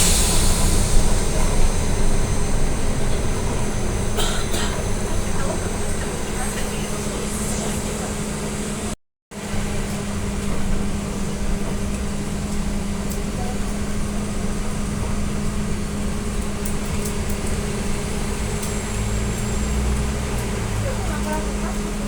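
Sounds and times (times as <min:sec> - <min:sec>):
constant low hum: 0:00.0 - 0:08.9
road and machinery noise: 0:00.0 - 0:22.0
trolleybus cabin running noise: 0:00.0 - 0:22.0.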